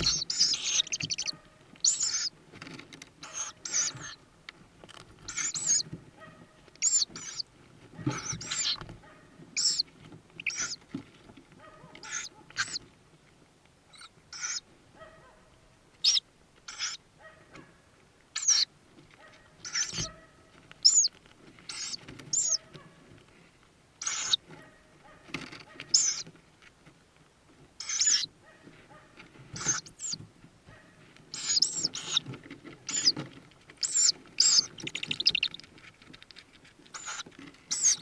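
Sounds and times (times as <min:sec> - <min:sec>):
owl chicks calling: 0:00.0 - 0:02.4, 0:03.2 - 0:04.3, 0:05.2 - 0:06.0, 0:06.6 - 0:10.9, 0:11.9 - 0:12.9, 0:13.9 - 0:14.7, 0:16.0 - 0:17.0, 0:18.3 - 0:18.7, 0:19.6 - 0:20.2, 0:20.8 - 0:22.8, 0:24.0 - 0:24.5, 0:25.3 - 0:26.3, 0:27.8 - 0:28.4, 0:29.5 - 0:30.2, 0:31.3 - 0:38.0.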